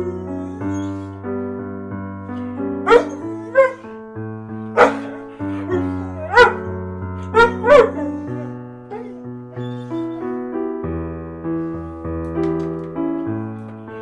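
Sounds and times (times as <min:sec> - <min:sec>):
piano music: 0:00.0 - 0:14.0
dog barking: 0:02.8 - 0:03.8, 0:04.8 - 0:06.7, 0:07.4 - 0:08.1.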